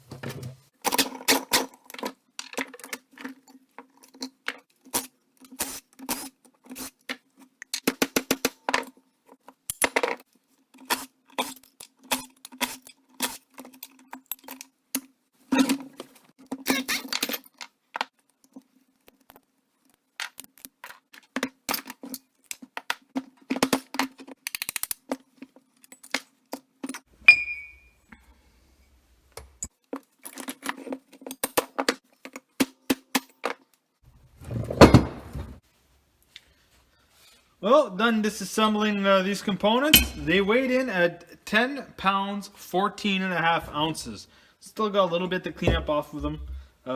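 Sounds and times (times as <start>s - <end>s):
metal tools clicking and clinking: 26.9s - 27.9s, 39.9s - 40.4s.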